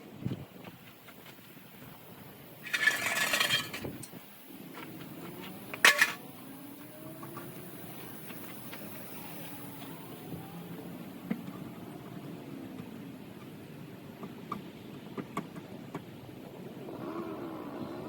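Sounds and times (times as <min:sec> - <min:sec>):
metal clinking and rattling: 0:02.6 - 0:04.1, 0:05.8 - 0:06.2.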